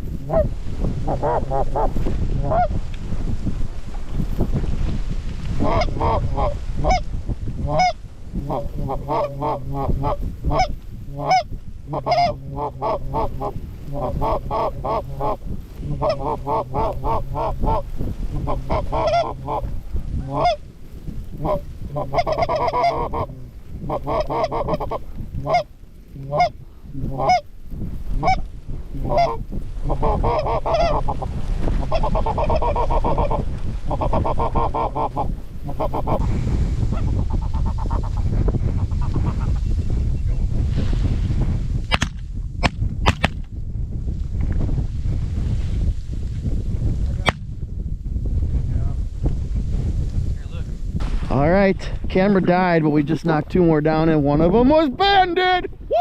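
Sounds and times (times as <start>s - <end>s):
low rumble of wind: 0.0s - 56.0s
geese honking and clucking: 0.2s - 2.8s, 5.6s - 20.6s, 21.3s - 27.5s, 28.2s - 36.2s, 36.9s - 38.2s.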